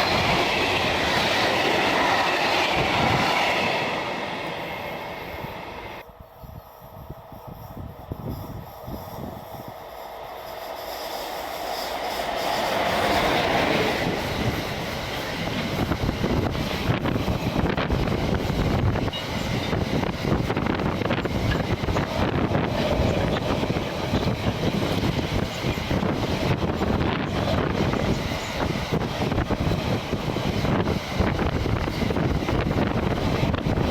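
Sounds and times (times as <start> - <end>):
train wheels clattering over rails: 11.2 - 33.9.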